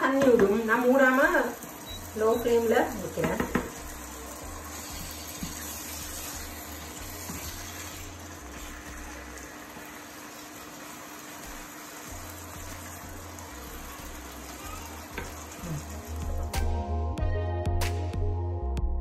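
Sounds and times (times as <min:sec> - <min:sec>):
curry sizzling in a pan: 0:00.0 - 0:16.8.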